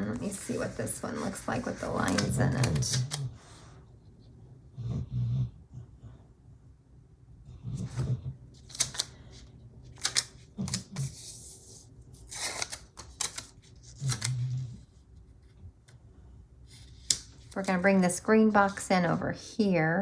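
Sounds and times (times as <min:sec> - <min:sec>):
paper rustling: 0:00.0 - 0:03.2, 0:08.6 - 0:14.6.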